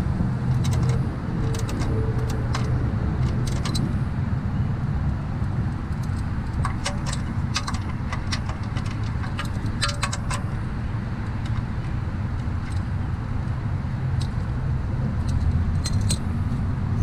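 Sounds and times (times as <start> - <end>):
steady low rumble: 0.0 - 17.0
metallic clicks of hand tools: 0.5 - 3.9, 6.0 - 10.5, 15.2 - 16.2.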